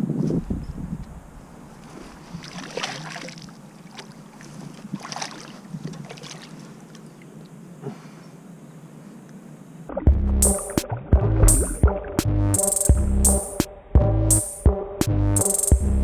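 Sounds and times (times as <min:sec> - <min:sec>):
wind noise on microphone: 0:00.0 - 0:02.4
water splashing in a stream: 0:01.7 - 0:07.6.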